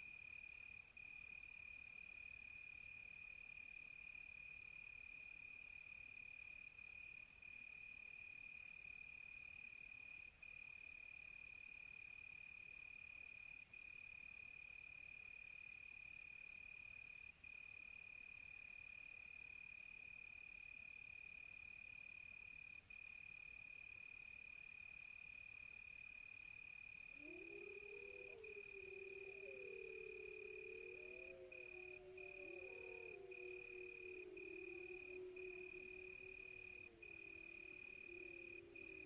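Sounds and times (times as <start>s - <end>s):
crickets trilling: 27.1s - 39.0s
fast-pulsing insect trill: 27.2s - 39.0s.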